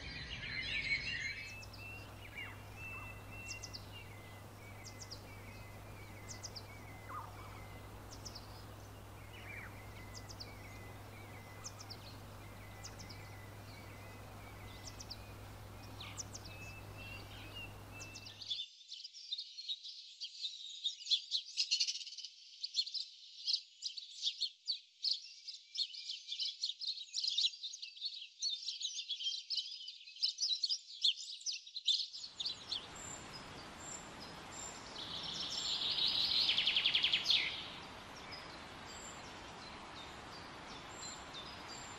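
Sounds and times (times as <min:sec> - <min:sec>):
birds chirping: 0:00.0 - 0:18.5, 0:32.4 - 0:41.9
background hiss with low hum: 0:01.3 - 0:18.4, 0:32.4 - 0:41.9.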